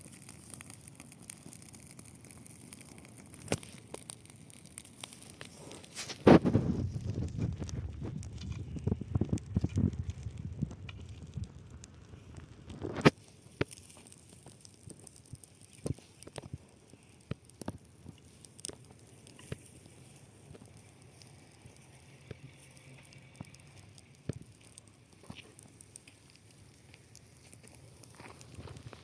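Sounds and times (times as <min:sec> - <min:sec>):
burning grass crackling: 0:00.0 - 0:29.0
faint steady hiss: 0:00.0 - 0:29.0
sharp pops: 0:00.4 - 0:20.8.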